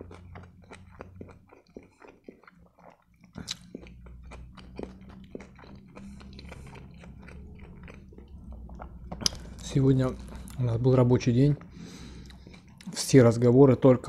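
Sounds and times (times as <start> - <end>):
mouth clicks and smacks: 0.0 - 9.7
person chewing food: 0.0 - 13.2.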